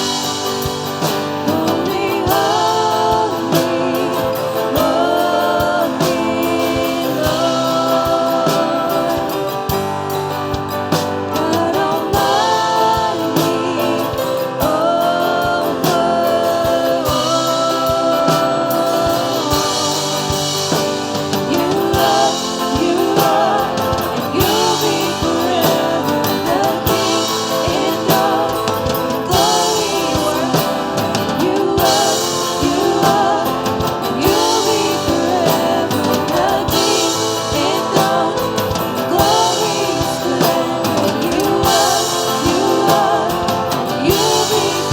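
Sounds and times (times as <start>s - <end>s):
band with steady drum beat: 0.0s - 44.9s
voices singing: 0.0s - 44.9s.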